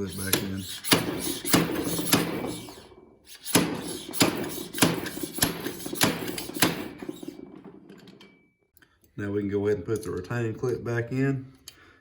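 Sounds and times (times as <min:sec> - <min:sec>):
sharp metal knocks: 0:00.1 - 0:08.4.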